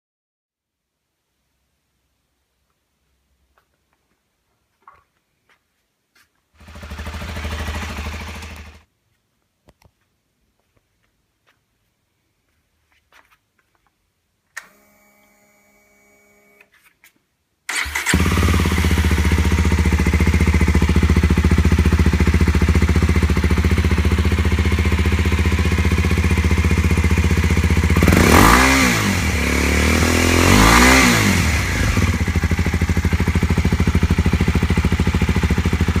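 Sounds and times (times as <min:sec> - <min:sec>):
motorcycle engine idling and revving: 0:06.6 - 0:08.9, 0:17.7 - 0:36.0
starter whir: 0:17.7 - 0:20.4.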